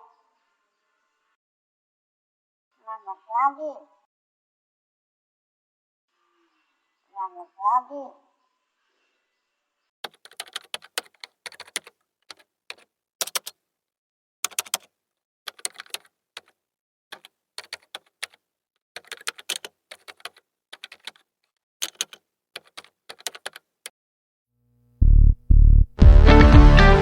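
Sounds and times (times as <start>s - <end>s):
sharp dry clicks: 10.0s - 13.6s, 14.4s - 14.9s, 15.5s - 18.4s, 21.8s - 23.6s.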